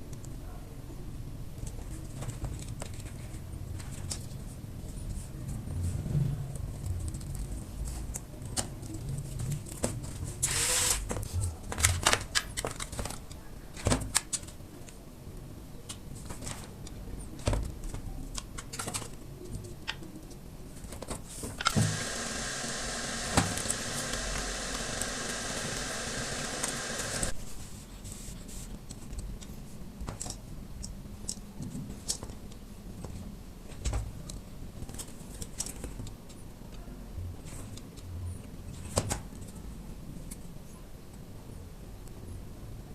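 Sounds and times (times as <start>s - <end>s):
steady noise: 21.6s - 27.4s.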